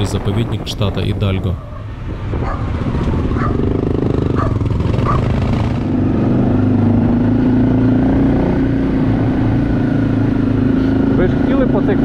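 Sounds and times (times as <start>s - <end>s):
motorcycle engine droning: 1.6s - 12.0s.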